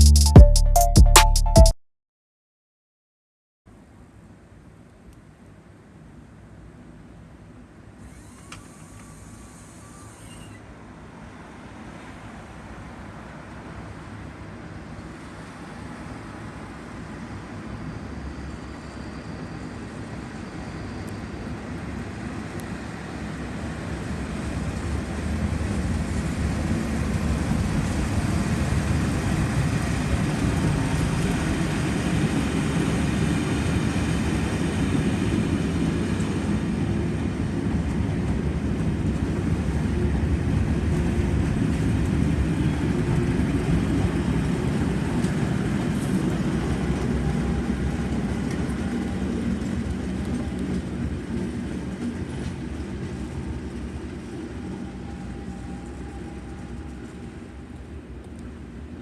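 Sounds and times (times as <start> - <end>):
diesel locomotive engine drone: 8.4 - 59.0.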